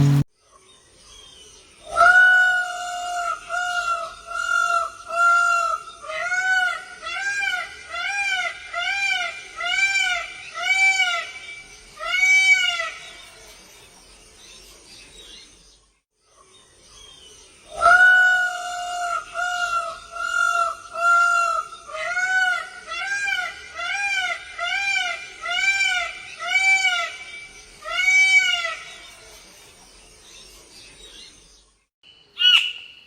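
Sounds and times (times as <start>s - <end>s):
bird calling: 32.2s - 33.0s.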